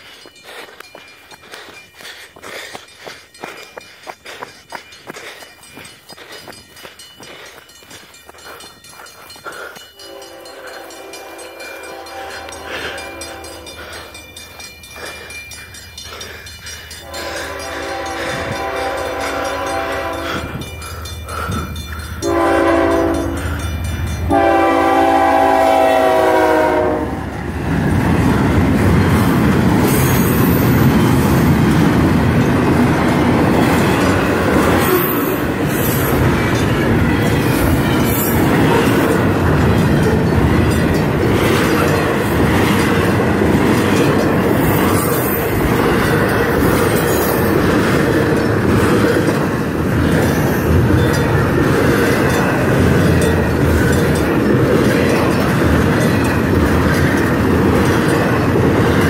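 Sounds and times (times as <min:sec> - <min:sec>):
train wheels clickety-clack: 0:00.0 - 0:59.0
locomotive horn blasts: 0:10.0 - 0:13.8, 0:17.0 - 0:20.5, 0:22.2 - 0:23.4, 0:24.2 - 0:27.3.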